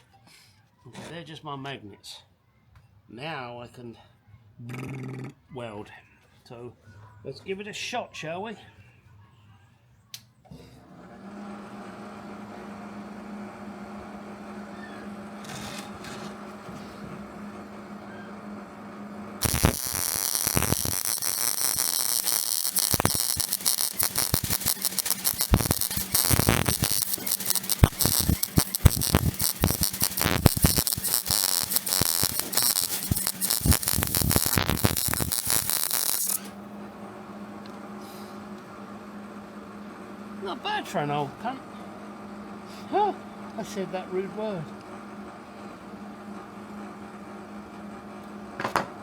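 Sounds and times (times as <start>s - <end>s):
welding arc crackling: 19.4s - 36.6s
welder humming: 19.4s - 36.8s.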